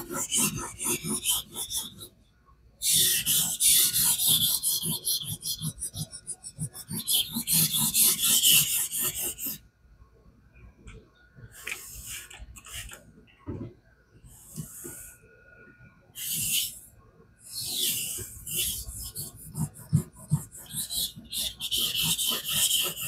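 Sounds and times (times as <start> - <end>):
knife scraping on whetstone: 18.7 - 23.0.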